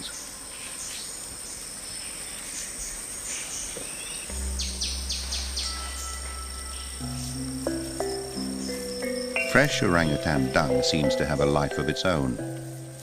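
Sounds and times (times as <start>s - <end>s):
insect drone: 0.0s - 13.0s
bird calls: 1.9s - 13.0s
background music: 4.3s - 13.0s.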